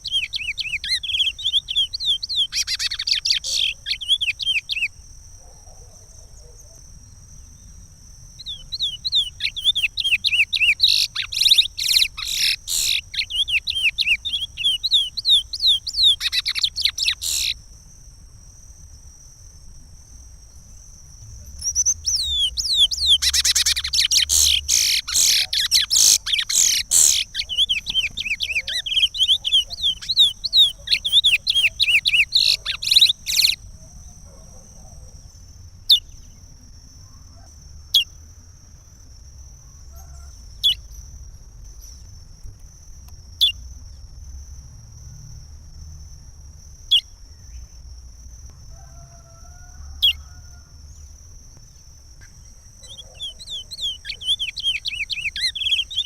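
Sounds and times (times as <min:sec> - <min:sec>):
finch singing warbled notes: 0:21.6 - 0:33.6.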